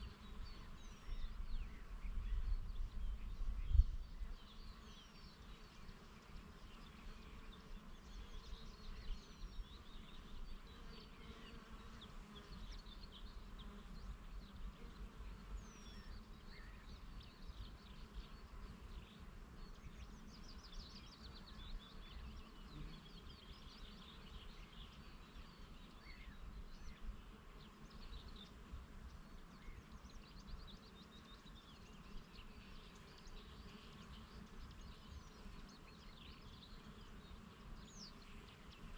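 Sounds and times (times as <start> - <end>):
wind rumble on microphone: 0.0 - 4.7
birds chirping and trilling: 0.0 - 38.9.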